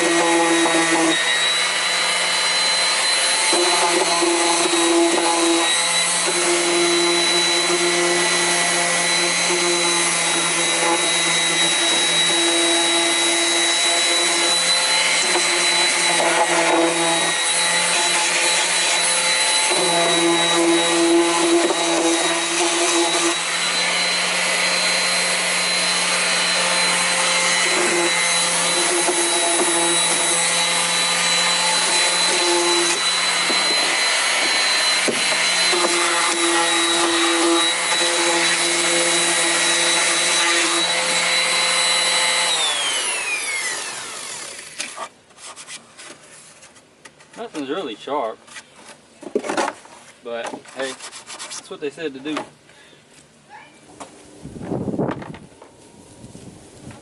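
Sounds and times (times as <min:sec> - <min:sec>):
electric sander running: 0:00.0 - 0:45.0.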